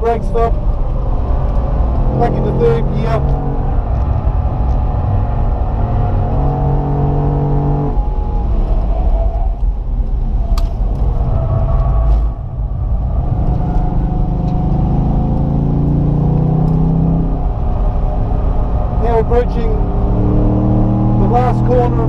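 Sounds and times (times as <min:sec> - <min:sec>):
car engine driven hard: 0:00.0 - 0:22.0.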